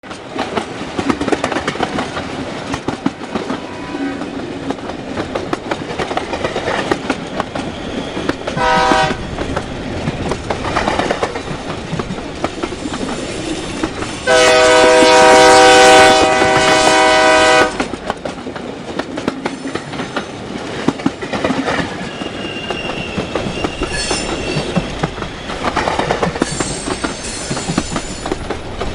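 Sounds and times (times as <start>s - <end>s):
train wheels clattering on rails: 0.0s - 28.9s
steam whistle blast: 8.6s - 9.2s, 14.3s - 17.8s
thin high squeal: 22.0s - 25.6s, 26.4s - 28.3s.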